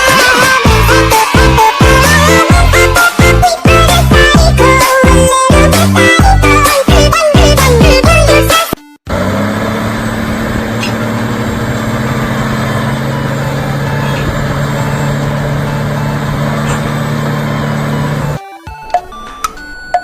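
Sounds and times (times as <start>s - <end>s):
heavy diesel engine running: 0.6s - 4.8s, 9.1s - 18.4s.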